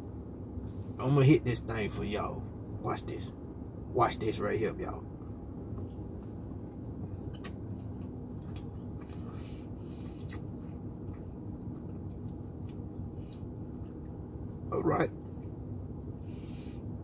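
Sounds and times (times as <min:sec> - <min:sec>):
steady low hum: 0:00.0 - 0:17.0
person chewing a biscuit: 0:05.2 - 0:16.8.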